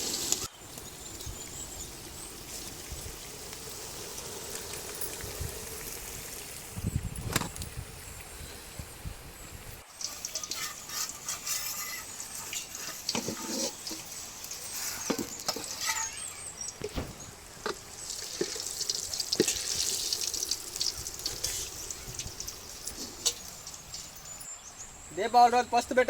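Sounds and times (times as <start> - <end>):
water splashing and dripping: 1.9 - 7.8, 9.9 - 15.8, 16.8 - 24.4.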